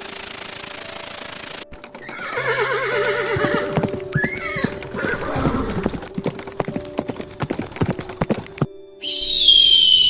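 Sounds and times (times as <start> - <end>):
hoof clops on ground: 1.7 - 8.8
horse whinnying: 2.0 - 6.0.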